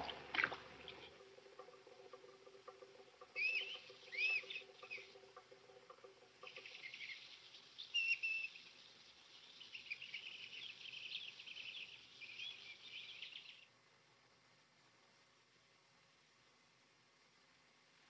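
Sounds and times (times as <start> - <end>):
small birds chirping: 0.0 - 13.7.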